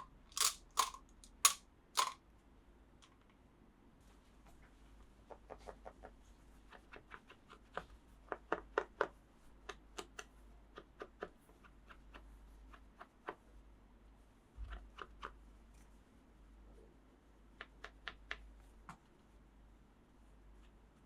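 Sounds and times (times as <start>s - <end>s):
toys clicking and tapping: 0.0s - 2.2s.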